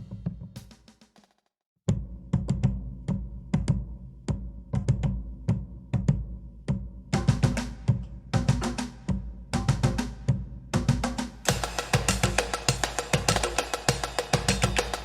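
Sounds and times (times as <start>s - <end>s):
drumline sharp stick strokes: 11.4s - 15.0s.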